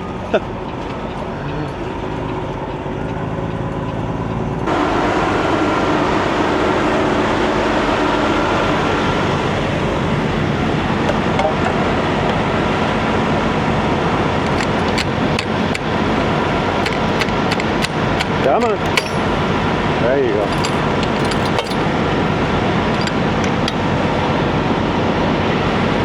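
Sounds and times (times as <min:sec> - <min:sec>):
truck diesel engine running: 0:00.0 - 0:12.1, 0:13.2 - 0:25.6
sharp clicks: 0:14.4 - 0:16.0, 0:16.8 - 0:19.6, 0:20.4 - 0:21.9.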